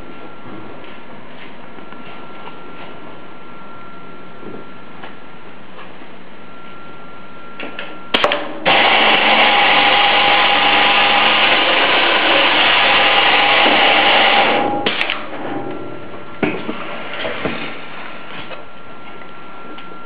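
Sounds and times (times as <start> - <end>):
boring machine motor whining: 8.6 - 14.8.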